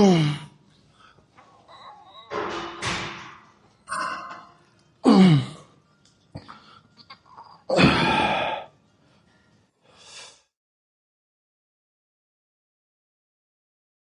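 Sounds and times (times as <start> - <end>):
man groaning with effort: 0.0 - 0.5, 5.0 - 5.6, 7.7 - 8.7.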